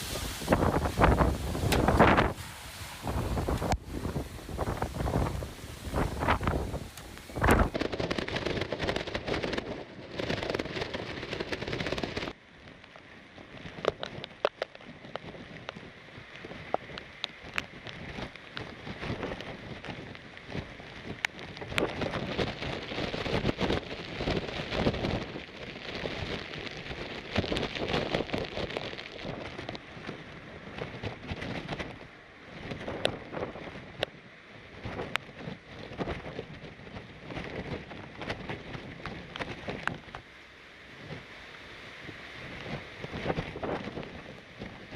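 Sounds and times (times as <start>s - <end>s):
raindrops tapping: 0.0s - 12.4s
wind-driven rain: 0.0s - 44.9s.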